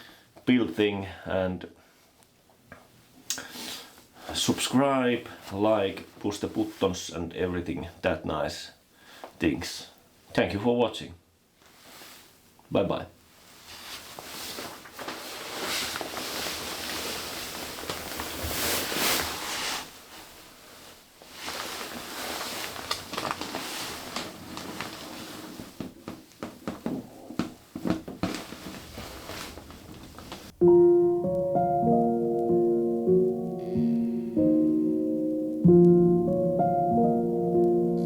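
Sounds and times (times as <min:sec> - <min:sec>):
gentle piano music: 0:30.6 - 0:38.0.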